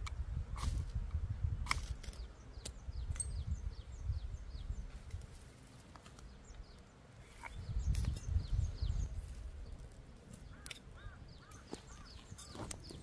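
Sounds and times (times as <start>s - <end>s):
bird chirping: 2.0s - 5.1s, 6.0s - 13.0s.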